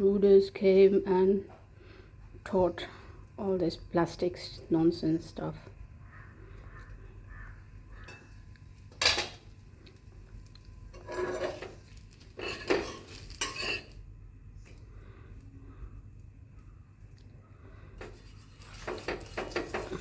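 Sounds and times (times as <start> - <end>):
faint background hum: 0.0 - 20.0
utensils scraping cookware: 10.9 - 14.0, 18.0 - 20.0.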